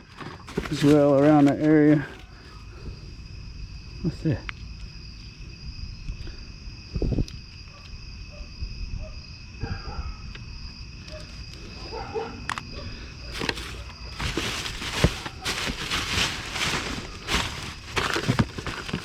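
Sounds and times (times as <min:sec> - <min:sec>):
plastic bags crinkling and rustling: 0:00.0 - 0:02.3, 0:12.4 - 0:19.0.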